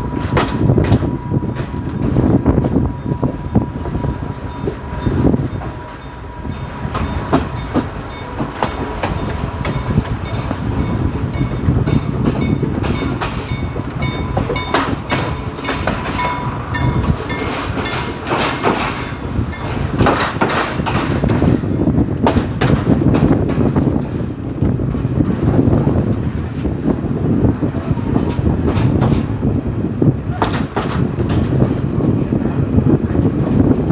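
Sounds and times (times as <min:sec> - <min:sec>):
train rumble: 0:00.0 - 0:33.9
wheels clicking and clanking: 0:04.6 - 0:26.8.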